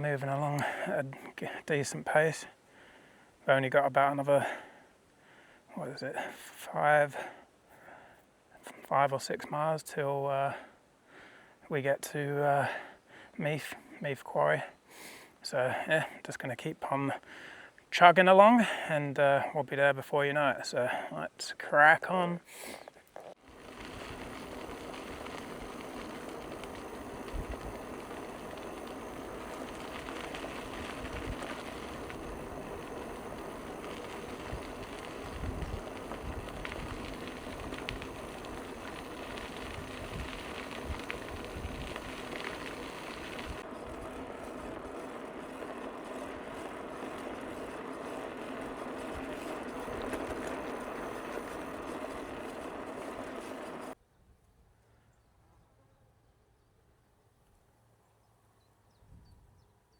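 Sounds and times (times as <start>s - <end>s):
bicycle rolling on trail: 0.0s - 8.1s, 8.7s - 16.2s, 17.2s - 19.5s, 22.5s - 54.0s
small knocks from bicycle: 23.1s - 54.0s.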